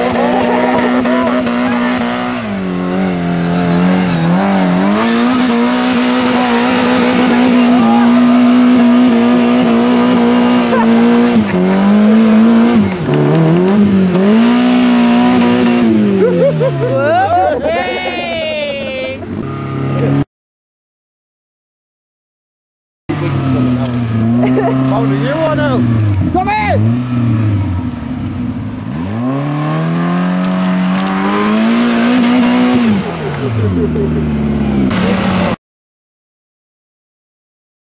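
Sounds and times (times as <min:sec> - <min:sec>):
engine revving hard: 0:00.0 - 0:17.4, 0:23.1 - 0:35.6.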